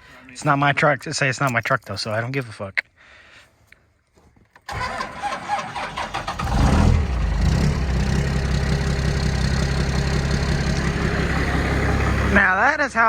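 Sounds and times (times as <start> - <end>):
starter motor cranking: 4.7 - 7.0, 10.3 - 12.5
diesel engine starting and idling: 4.7 - 13.0.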